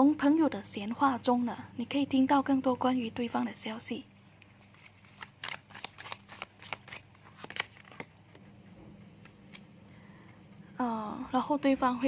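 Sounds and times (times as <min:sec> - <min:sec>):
cards being shuffled: 0:04.4 - 0:09.8.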